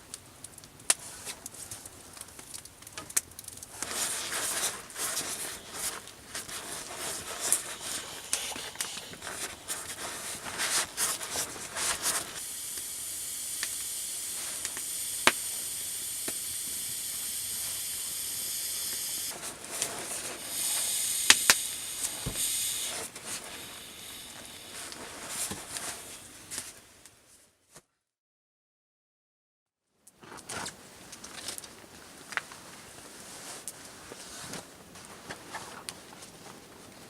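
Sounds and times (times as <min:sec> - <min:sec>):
fire cracks and pops: 0:00.0 - 0:26.8, 0:30.1 - 0:33.0
campfire hissing: 0:00.0 - 0:27.0.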